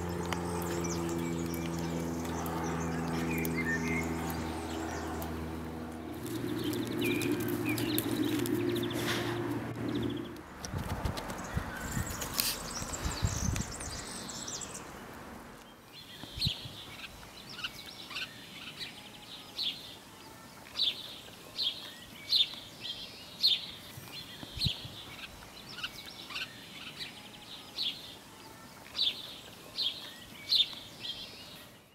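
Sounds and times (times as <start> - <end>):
broad rush of noise: 0.0 - 15.6
faint outdoor hiss: 0.0 - 31.9
small bird chirping: 6.1 - 9.2.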